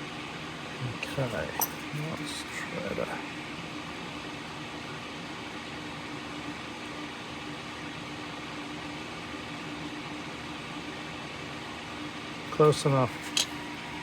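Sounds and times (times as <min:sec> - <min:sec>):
fan whirring: 0:00.0 - 0:07.3.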